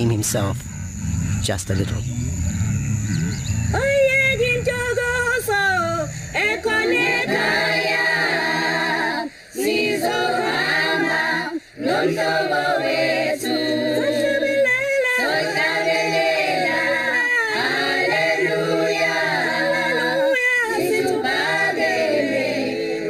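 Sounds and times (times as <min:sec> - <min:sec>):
singers breathing: 0:00.6 - 0:01.6, 0:02.2 - 0:07.1, 0:09.2 - 0:09.8, 0:11.4 - 0:11.9
choir singing unaccompanied: 0:02.3 - 0:23.0.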